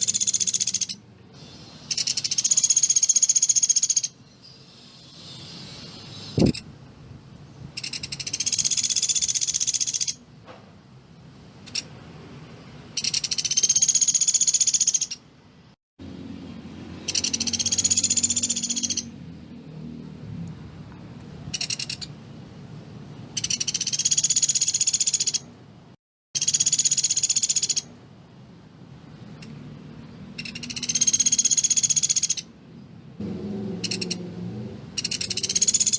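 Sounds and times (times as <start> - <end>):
bird rattling trills: 0.0 - 4.2, 7.7 - 10.2, 13.0 - 15.2, 17.0 - 19.1, 21.5 - 22.1, 23.4 - 25.5, 26.4 - 27.9, 30.4 - 32.5, 33.8 - 34.2, 35.0 - 35.9.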